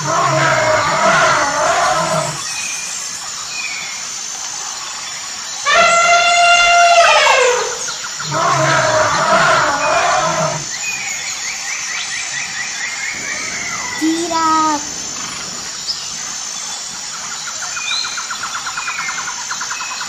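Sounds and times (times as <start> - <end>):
elephant trumpeting: 5.7 - 10.6, 13.2 - 16.2
low rumble: 13.1 - 16.9.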